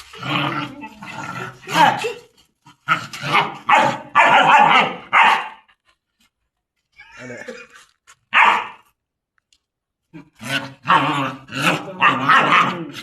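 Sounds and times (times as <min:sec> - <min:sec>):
dog barking: 0:03.3 - 0:05.7, 0:08.3 - 0:08.8.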